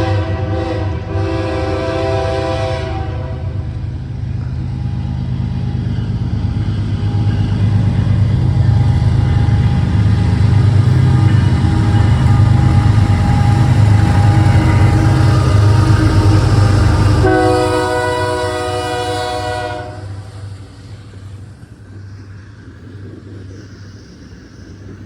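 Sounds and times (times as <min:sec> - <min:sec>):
train air horn: 0:00.0 - 0:03.7, 0:09.3 - 0:20.6
diesel locomotive engine rumble: 0:00.0 - 0:25.0
train rolling: 0:00.0 - 0:25.0.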